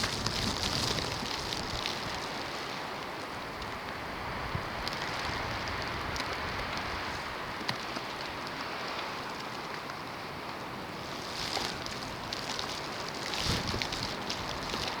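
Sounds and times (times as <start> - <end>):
snow ticking against surfaces: 0.0 - 3.0, 10.8 - 15.0
wind of snowstorm blowing: 0.0 - 7.7, 10.6 - 15.0.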